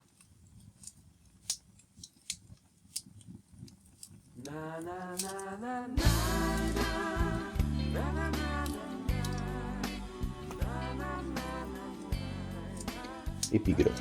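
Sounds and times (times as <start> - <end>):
wood fire crackling: 0.0 - 14.0
background music with bass: 6.0 - 14.0
gliding melody: 6.0 - 14.0.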